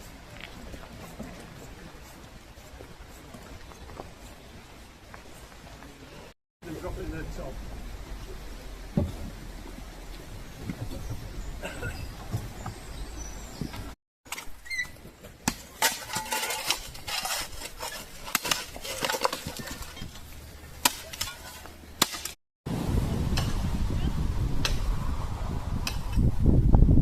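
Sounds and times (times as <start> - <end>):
steady low rumble: 6.6 - 11.6
tools clinking on stone and gravel: 15.7 - 20.3.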